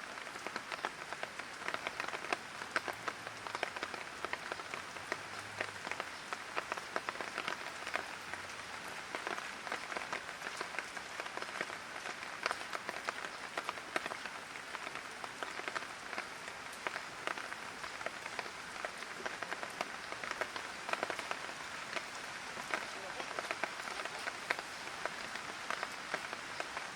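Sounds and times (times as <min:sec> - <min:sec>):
light rain falling: 0:00.0 - 0:26.9.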